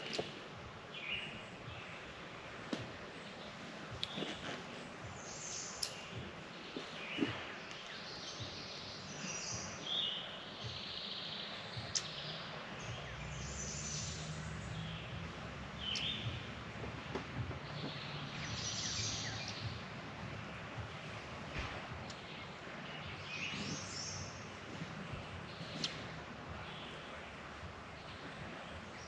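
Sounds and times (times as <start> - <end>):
birds chirping and trilling: 0.0 - 29.0
low steady rumble: 11.6 - 29.0.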